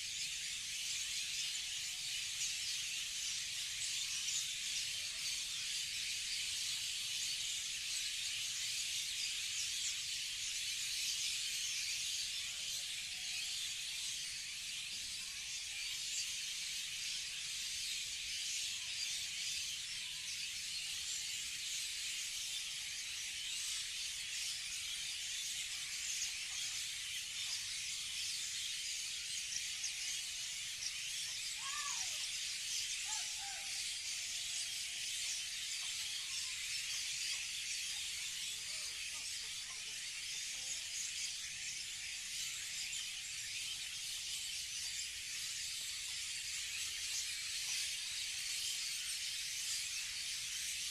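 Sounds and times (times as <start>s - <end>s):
birds chirping densely: 0.0s - 50.9s
low bird calls falling in pitch: 31.6s - 32.3s.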